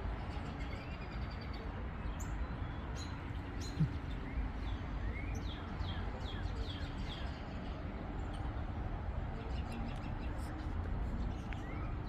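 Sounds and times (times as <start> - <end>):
birds chirping: 0.2 - 7.6.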